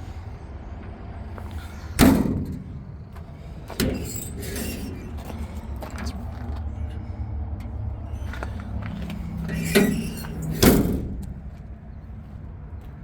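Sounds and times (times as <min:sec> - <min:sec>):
truck door slamming: 0:01.9 - 0:06.3, 0:09.5 - 0:11.7.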